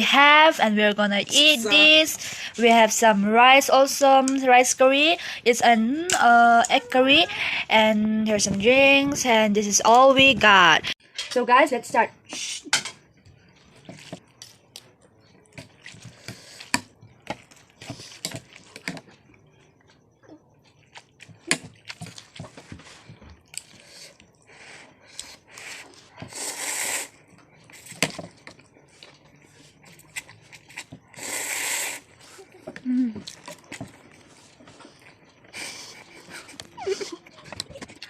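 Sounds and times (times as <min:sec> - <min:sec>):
chewing and crunching: 0:13.2 - 0:26.4, 0:27.1 - 0:38.0.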